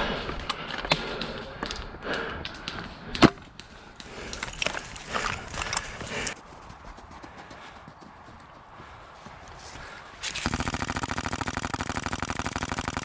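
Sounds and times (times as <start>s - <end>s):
airsoft rifle full-auto burst: 10.3s - 13.0s.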